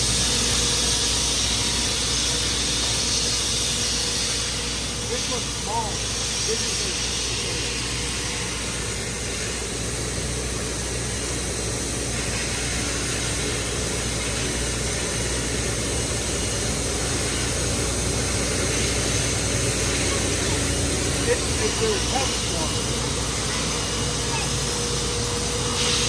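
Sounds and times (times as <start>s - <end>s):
steady hiss: 0.0s - 26.0s
engine humming: 7.0s - 26.0s.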